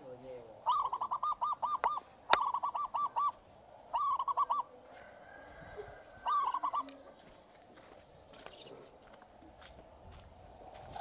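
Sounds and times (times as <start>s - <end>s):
bird calling in rapid notes: 0.6s - 4.7s, 6.2s - 6.9s.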